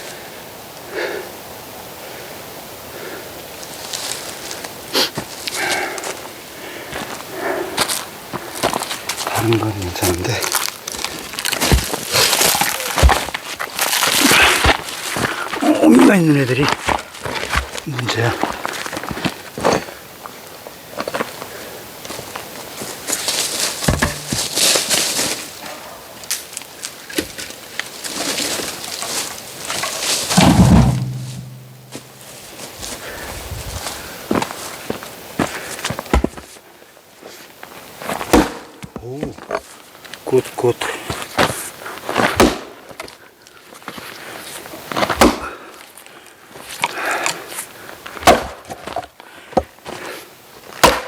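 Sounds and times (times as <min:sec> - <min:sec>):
wood rustling and scraping: 0:23.1 - 0:25.4, 0:28.0 - 0:32.7
wood rustling: 0:23.3 - 0:25.4
heavy blows splitting wood: 0:23.9 - 0:24.9, 0:30.4 - 0:32.5
axe splitting firewood: 0:23.9 - 0:25.1.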